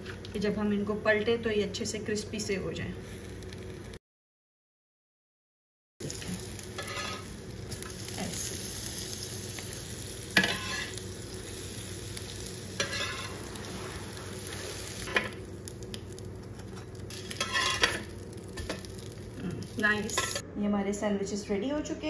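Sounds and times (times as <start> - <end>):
sandwiches sizzling on grill pan: 6.0 - 20.4
metal spatula scraping pan: 6.8 - 7.3, 10.4 - 11.0, 12.8 - 14.0, 17.1 - 18.8.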